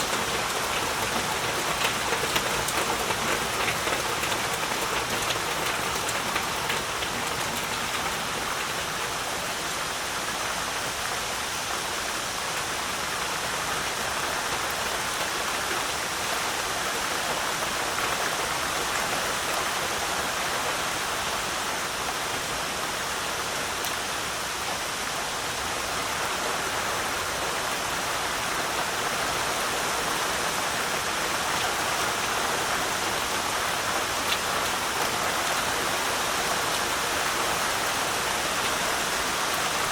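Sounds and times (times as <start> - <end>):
rain drop ticks: 0.0 - 9.2, 34.0 - 39.9
heavy rain hissing: 0.0 - 39.9.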